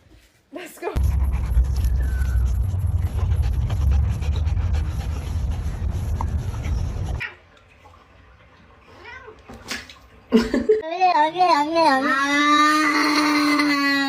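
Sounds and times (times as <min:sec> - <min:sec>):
dog panting: 0:01.0 - 0:07.2
heavy low rumble: 0:01.0 - 0:07.2.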